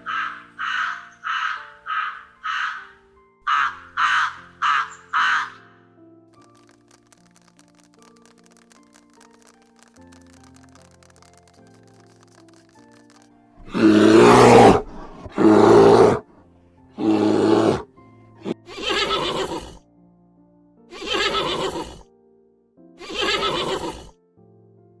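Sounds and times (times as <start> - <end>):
animal calling harshly: 0.0 - 2.9, 3.5 - 5.7, 13.6 - 16.2, 17.0 - 19.8, 20.9 - 22.0, 23.0 - 24.1
soft background music: 0.0 - 25.0.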